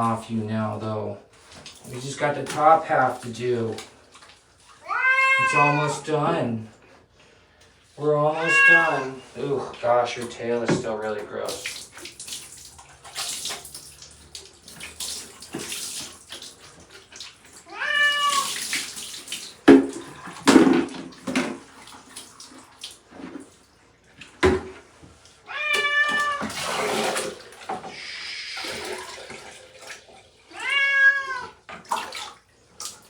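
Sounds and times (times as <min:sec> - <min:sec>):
water splashing and running: 0:01.4 - 0:05.6, 0:10.1 - 0:33.0
cat yowling: 0:04.8 - 0:06.0, 0:08.4 - 0:09.2, 0:17.7 - 0:18.6, 0:25.5 - 0:26.6, 0:30.5 - 0:31.6.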